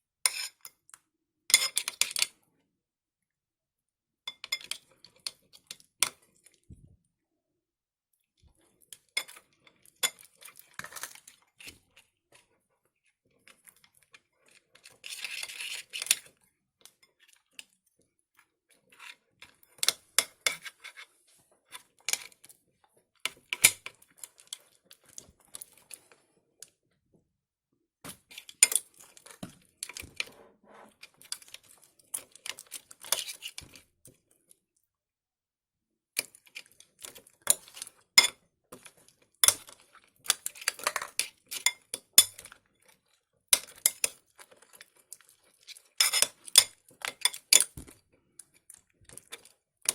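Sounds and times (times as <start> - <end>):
spoon scraping a bowl: 0.3 - 0.7, 15.0 - 16.3, 18.9 - 21.1, 28.3 - 31.8, 32.5 - 33.8, 45.6 - 47.4.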